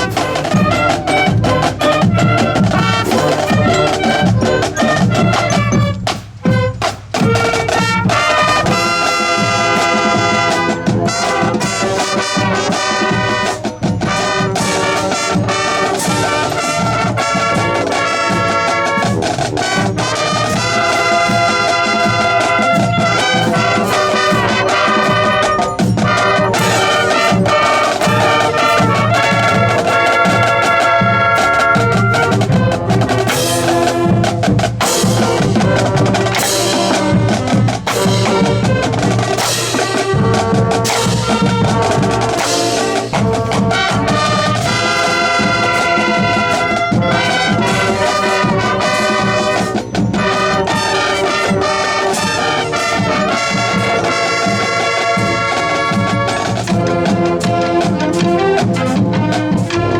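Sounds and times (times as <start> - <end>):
marching band playing: 0.0 - 59.9.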